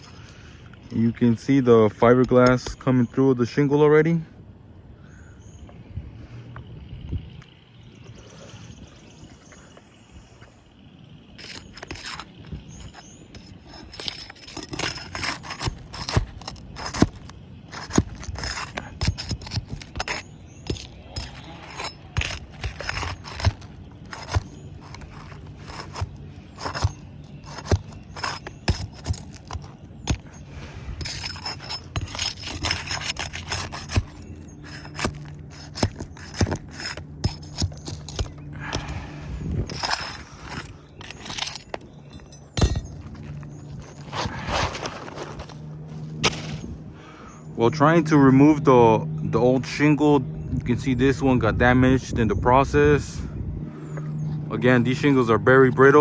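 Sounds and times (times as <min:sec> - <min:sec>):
roof shingle being scraped and pried: 0:00.0 - 0:02.9, 0:11.4 - 0:47.0, 0:54.2 - 0:56.0.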